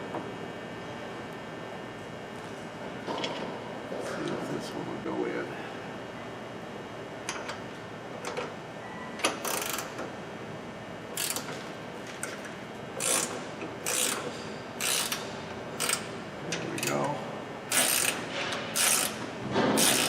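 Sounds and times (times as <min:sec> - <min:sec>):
hand ratchet clicking: 0:13.0 - 0:15.2, 0:15.8 - 0:16.0, 0:17.7 - 0:18.2, 0:18.8 - 0:19.2, 0:19.8 - 0:20.0.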